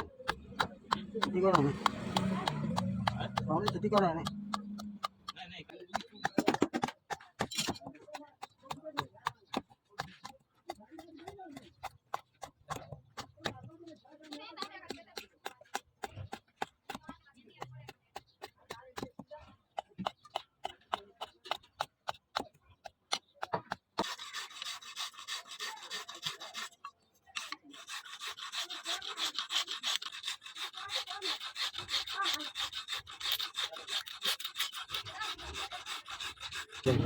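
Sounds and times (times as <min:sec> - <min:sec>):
knife rasping on abrasive: 0:00.0 - 0:10.1, 0:23.7 - 0:37.0.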